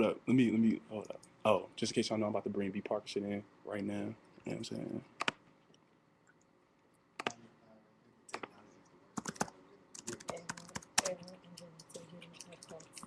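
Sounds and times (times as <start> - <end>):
typing on computer keyboard: 9.2 - 13.0.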